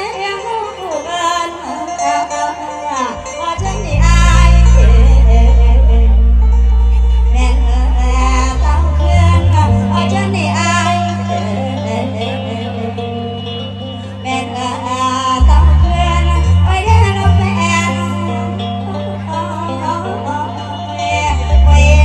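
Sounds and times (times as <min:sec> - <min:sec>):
band backing music: 0:00.0 - 0:22.0
woman singing: 0:00.0 - 0:22.0
deep bass notes: 0:03.6 - 0:19.4, 0:21.1 - 0:22.0.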